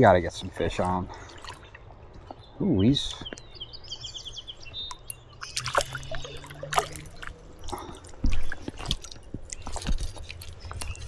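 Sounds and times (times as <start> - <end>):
shallow river water splashing: 0.4 - 2.3, 4.9 - 10.6.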